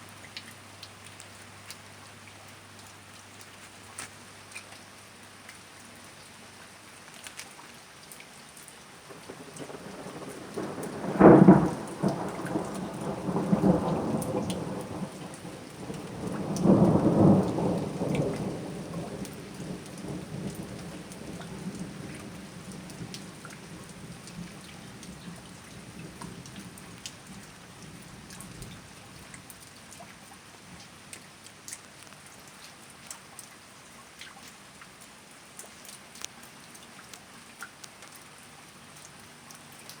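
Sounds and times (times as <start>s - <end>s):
steady rain: 0.0s - 40.0s
thunder cracking and rumbling: 9.1s - 29.4s
single raindrops ticking: 9.1s - 40.0s.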